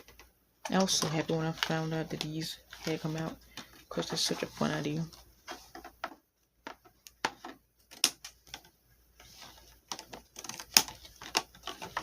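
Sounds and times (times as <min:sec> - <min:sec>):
packaging cut open and handled: 0:09.9 - 0:12.0.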